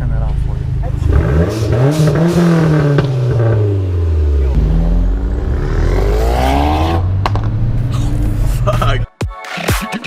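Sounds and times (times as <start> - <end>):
car engine under hard acceleration: 0.0 - 8.9.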